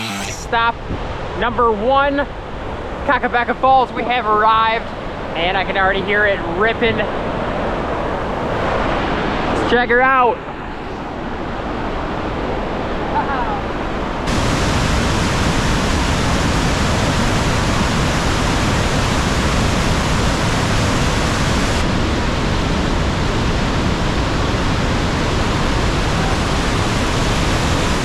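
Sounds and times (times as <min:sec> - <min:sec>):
waterfall rushing: 0:14.3 - 0:21.8.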